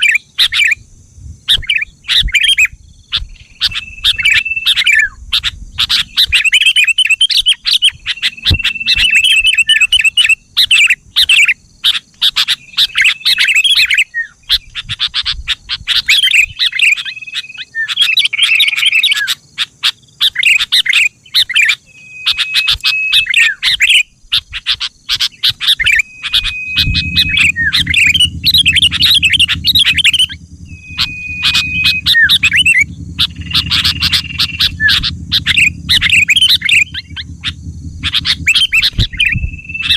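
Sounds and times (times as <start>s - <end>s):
bird singing: 0.0s - 39.9s
low steady hum: 26.0s - 39.9s.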